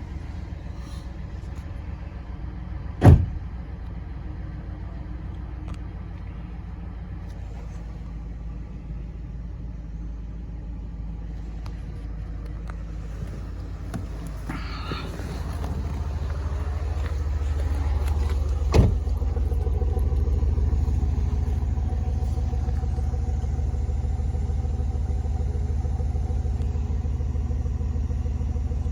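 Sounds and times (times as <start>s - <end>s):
car engine idling: 0.0s - 28.9s
loud thump: 3.0s - 3.5s, 18.2s - 19.2s.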